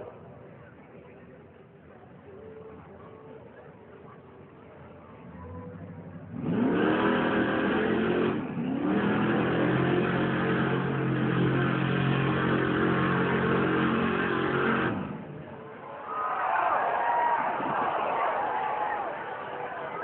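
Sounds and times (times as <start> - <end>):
truck engine revving hard: 6.3 - 15.5.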